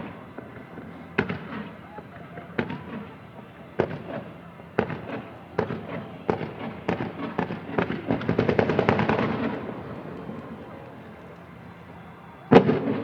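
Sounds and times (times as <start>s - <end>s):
fireworks exploding: 2.3s - 3.2s, 3.8s - 13.0s.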